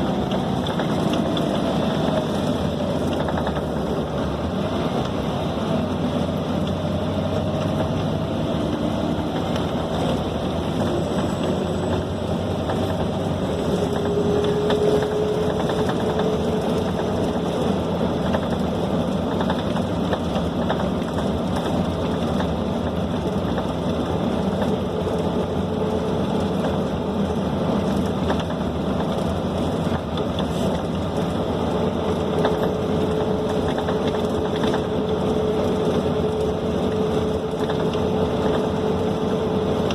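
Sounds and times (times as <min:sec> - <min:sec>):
bus diesel engine: 0:00.0 - 0:39.9
road rumble: 0:00.0 - 0:39.9.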